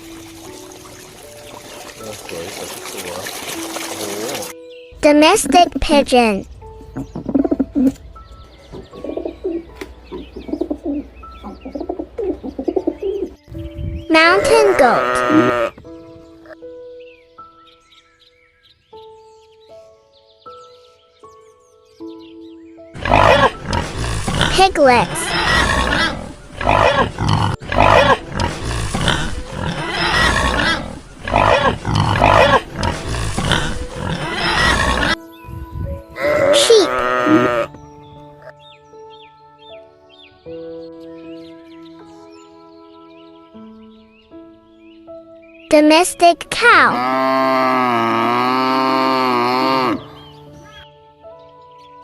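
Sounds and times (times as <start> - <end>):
pigeons cooing: 6.9 - 8.0, 8.8 - 13.4
piglets squealing and grunting: 14.3 - 15.8, 23.0 - 35.2, 36.2 - 37.7, 46.9 - 50.1.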